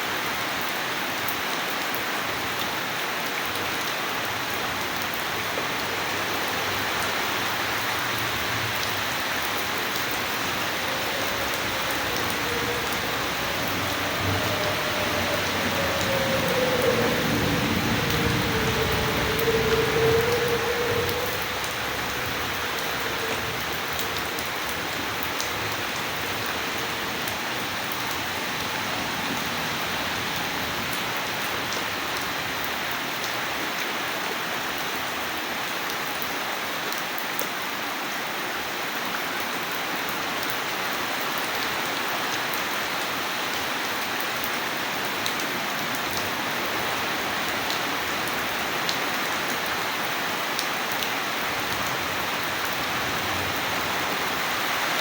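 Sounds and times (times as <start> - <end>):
rain hitting surfaces: 0.0 - 55.0.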